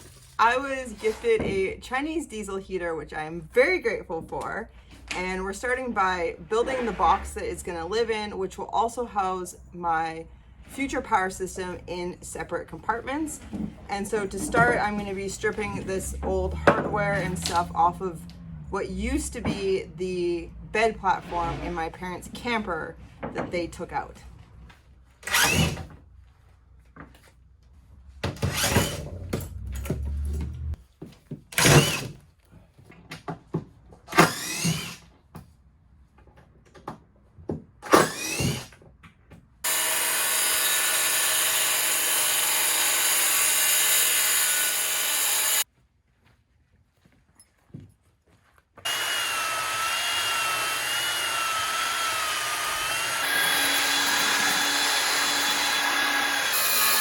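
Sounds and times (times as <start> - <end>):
cordless drill whining: 25.2 - 25.8, 34.1 - 35.0, 38.0 - 38.6, 39.7 - 45.6, 48.9 - 57.0
power tool running on wood: 28.3 - 30.7, 34.2 - 35.0, 39.7 - 45.6, 48.8 - 57.0.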